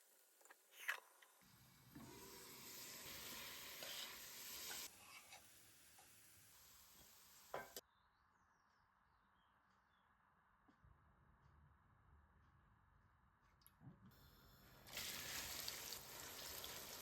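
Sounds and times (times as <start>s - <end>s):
food sizzling in hot oil: 2.0s - 7.8s, 14.9s - 17.0s.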